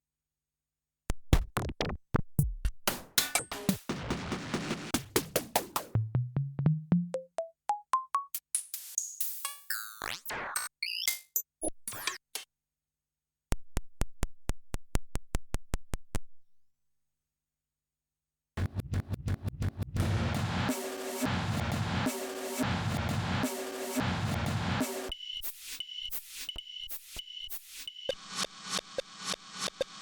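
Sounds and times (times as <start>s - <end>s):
synthesizer electronic percussion hits: 18.6s - 30.0s.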